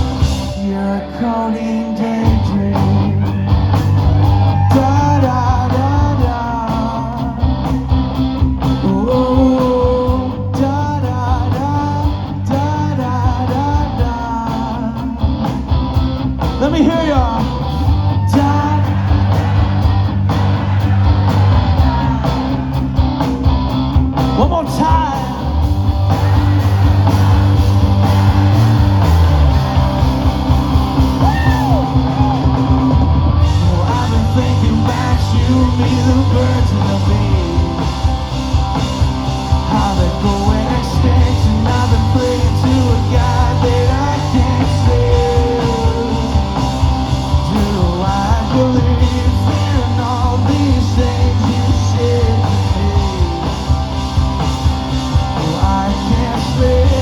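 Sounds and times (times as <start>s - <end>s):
live rock band playing: 0.0s - 57.0s
person singing: 0.4s - 7.5s, 33.4s - 38.3s, 39.7s - 46.8s.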